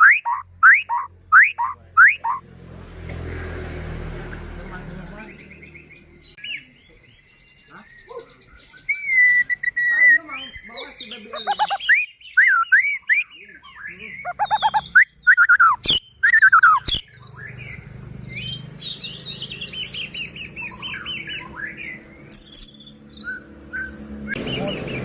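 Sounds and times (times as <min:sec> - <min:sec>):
bird singing whistles and rattles: 0:08.6 - 0:13.3, 0:14.3 - 0:17.6, 0:18.4 - 0:25.0.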